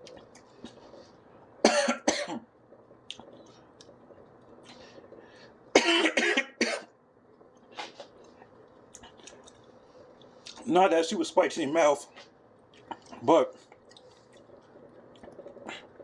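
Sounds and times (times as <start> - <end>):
man coughing: 1.7 - 2.4, 5.8 - 6.9.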